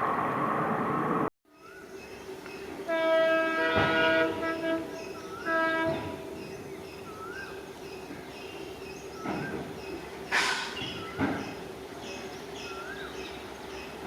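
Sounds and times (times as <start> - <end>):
locomotive horn blasts: 2.8 - 6.4.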